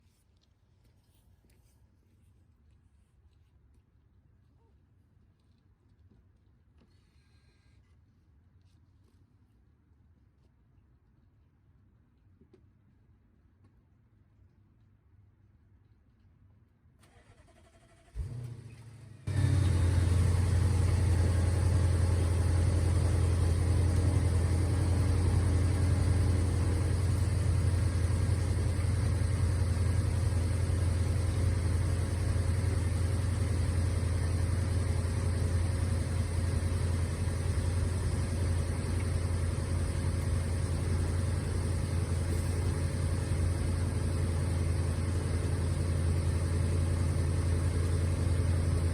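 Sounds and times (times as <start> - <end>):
car engine fast idle: 17.0 - 48.9.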